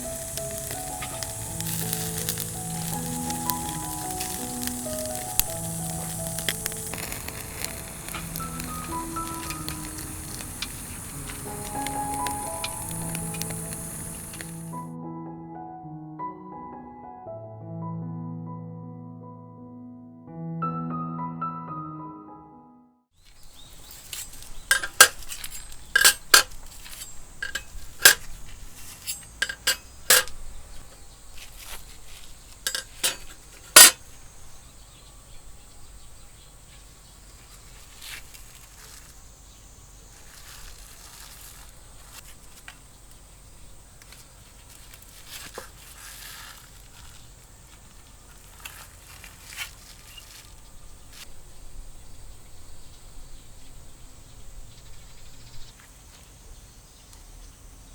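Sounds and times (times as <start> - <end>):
soft ticks: 0.0 - 14.7
insects chirring: 0.0 - 14.9, 23.2 - 57.9
metallic clicks and clinks: 23.8 - 30.4, 32.6 - 34.0.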